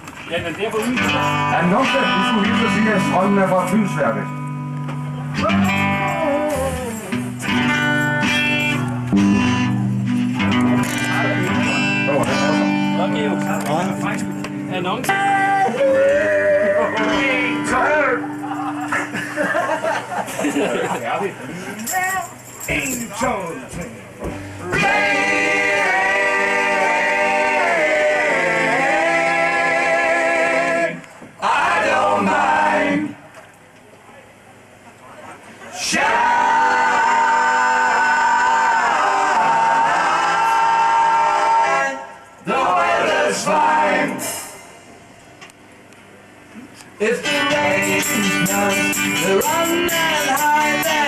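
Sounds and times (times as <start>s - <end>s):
rock band guitar chords: 1.0s - 20.4s, 24.1s - 27.6s, 43.5s - 45.2s, 47.2s - 51.0s.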